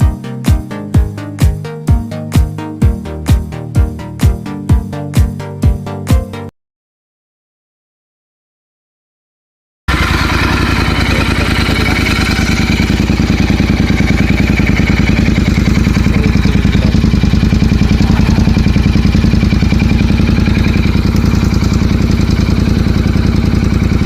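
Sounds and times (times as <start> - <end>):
motorcycle engine idling: 9.9 - 24.0.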